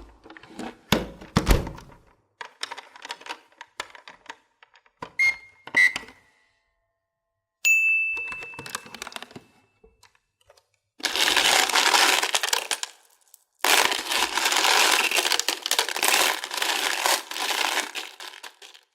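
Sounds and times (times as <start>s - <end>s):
candies rattling when stirred: 11.0s - 18.9s
hard candies clicking in container: 11.0s - 18.9s.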